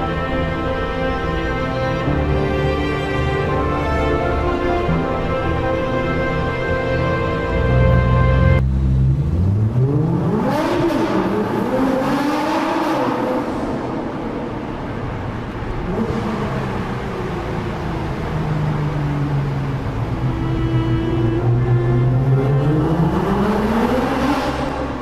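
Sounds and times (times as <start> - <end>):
car engine accelerating hard: 7.2 - 25.0.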